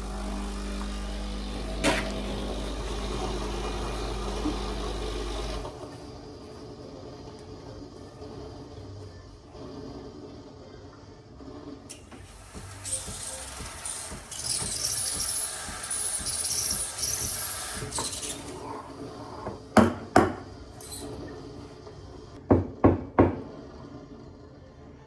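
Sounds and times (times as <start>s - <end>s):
hiss: 11.9s - 18.7s
hard objects knocking: 19.4s - 20.5s.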